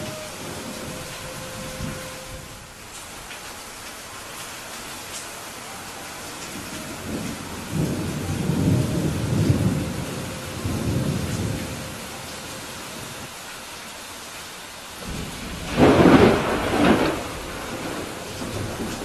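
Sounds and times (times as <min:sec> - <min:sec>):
thunder rumbling: 0:00.0 - 0:02.9, 0:05.7 - 0:13.3, 0:15.0 - 0:19.0
steady rain falling: 0:00.0 - 0:19.0.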